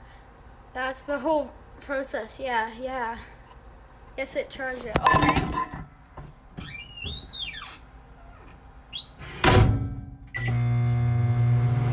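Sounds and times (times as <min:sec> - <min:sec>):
door creaking: 0:06.6 - 0:10.7.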